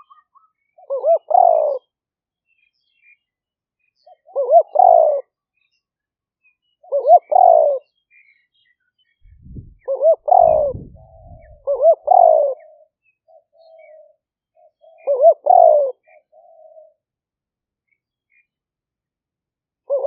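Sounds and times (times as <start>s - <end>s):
dove cooing: 0.8s - 1.9s, 4.1s - 5.3s, 6.8s - 7.9s, 9.5s - 17.0s.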